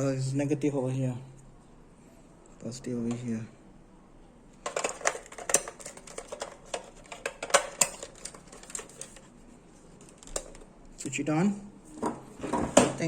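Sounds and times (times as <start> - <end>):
clicks and knocks of handling: 4.6 - 9.3, 10.0 - 11.1.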